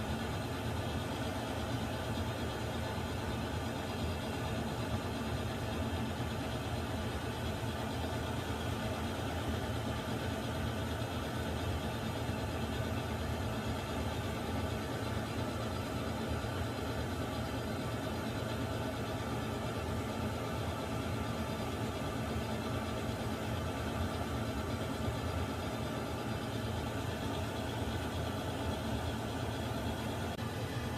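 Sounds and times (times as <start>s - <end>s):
water heater rumble and hiss: 29.9s - 30.9s.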